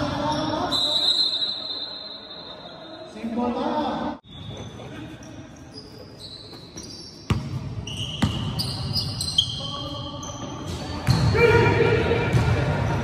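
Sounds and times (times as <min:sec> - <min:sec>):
sneakers squeaking: 0:00.0 - 0:03.2, 0:04.2 - 0:13.0.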